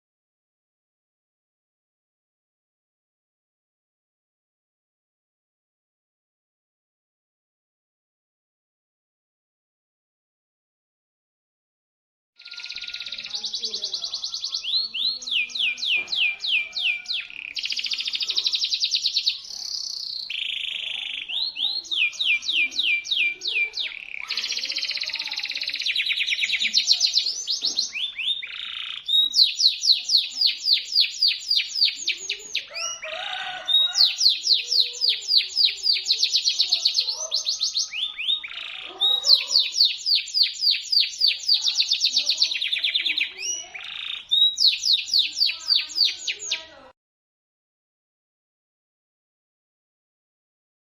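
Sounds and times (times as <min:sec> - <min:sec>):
canary singing trills: 0:12.4 - 0:46.9.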